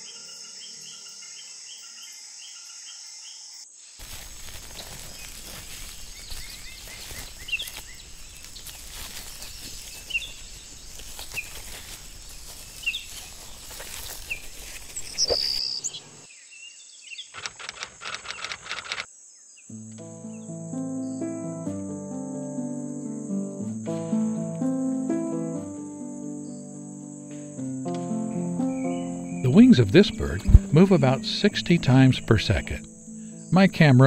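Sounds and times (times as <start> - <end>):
night insect chorus: 0.0 - 17.4, 19.1 - 19.7, 22.1 - 34.0
rapid clicks: 17.4 - 19.1.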